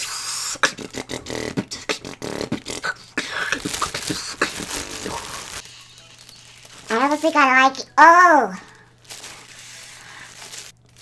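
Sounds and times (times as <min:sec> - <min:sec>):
beatboxing: 0:00.0 - 0:05.4.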